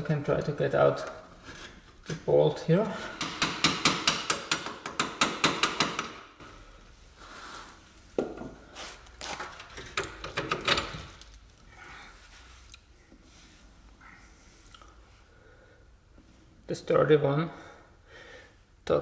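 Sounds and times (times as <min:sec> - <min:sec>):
hammer striking metal bolt: 0:03.2 - 0:06.3.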